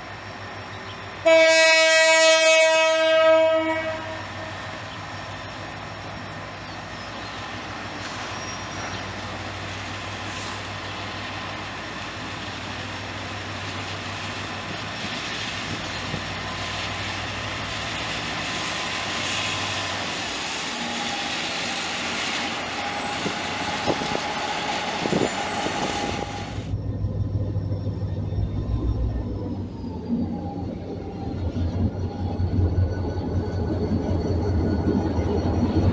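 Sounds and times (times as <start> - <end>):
diesel train passing on rails: 0.0 - 35.9
low rumble: 26.6 - 33.8.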